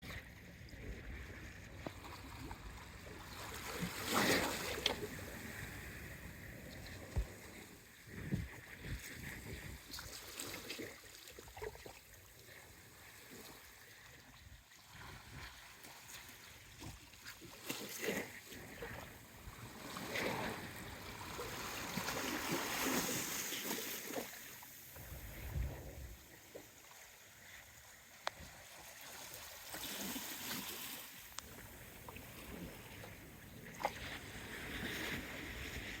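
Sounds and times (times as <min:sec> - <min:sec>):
waves splashing against rocks: 0:03.2 - 0:10.8, 0:17.6 - 0:26.8.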